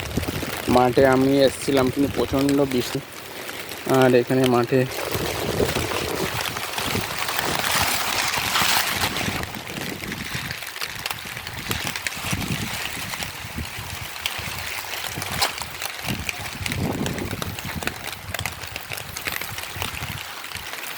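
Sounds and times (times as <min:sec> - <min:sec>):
heavy rain falling: 0:00.0 - 0:20.9.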